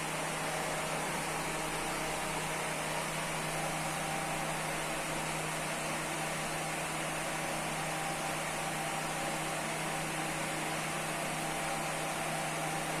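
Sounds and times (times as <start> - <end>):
exhaust fan running: 0.0 - 13.0.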